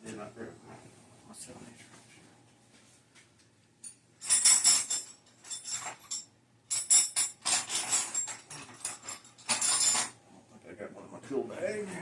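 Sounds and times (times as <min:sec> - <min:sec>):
metal hand tools jangling: 0:03.9 - 0:10.2.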